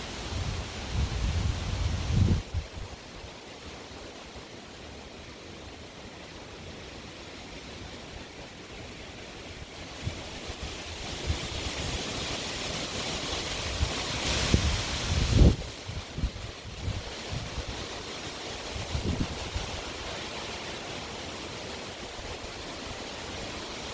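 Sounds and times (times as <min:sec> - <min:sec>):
strong wind rushing: 0:00.3 - 0:02.9, 0:13.6 - 0:17.8, 0:18.8 - 0:19.8
wind buffeting microphone: 0:00.3 - 0:03.0, 0:13.5 - 0:17.9, 0:18.6 - 0:20.0.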